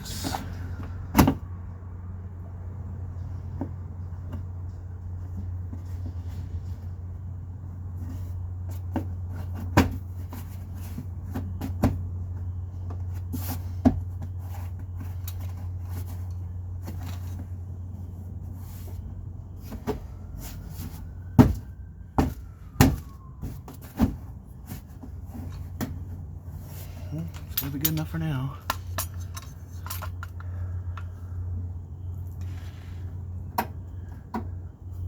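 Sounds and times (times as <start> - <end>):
steady low hum: 24.1 - 35.0
car parts knocking and clacking: 27.2 - 31.2.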